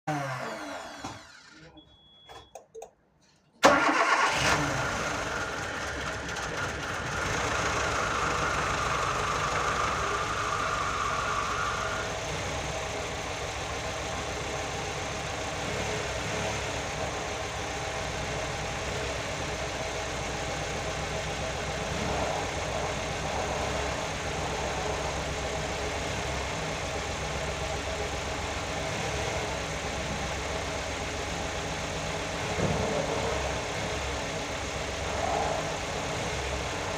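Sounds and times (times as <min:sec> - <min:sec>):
car engine cranking and idling: 0:00.1 - 0:02.9, 0:03.5 - 0:36.9
high whine: 0:18.7 - 0:28.3, 0:30.6 - 0:36.9.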